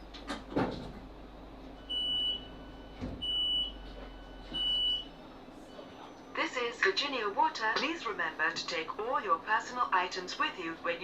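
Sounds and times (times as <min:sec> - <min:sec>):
high electronic door beeps: 0:01.9 - 0:03.8, 0:04.5 - 0:05.1.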